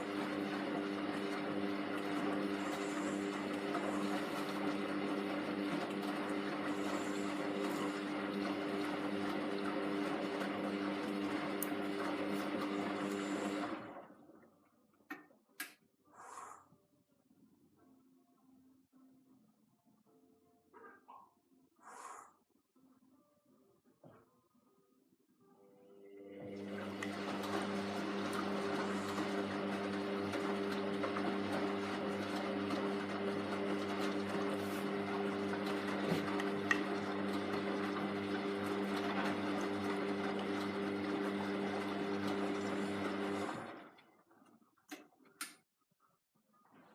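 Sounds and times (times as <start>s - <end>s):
washing machine humming: 0.0s - 14.6s, 25.8s - 45.5s.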